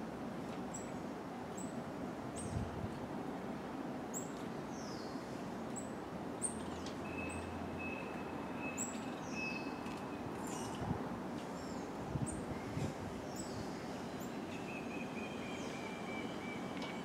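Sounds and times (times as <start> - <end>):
steady background noise: 0.0 - 17.0
small birds chirping: 5.8 - 10.8.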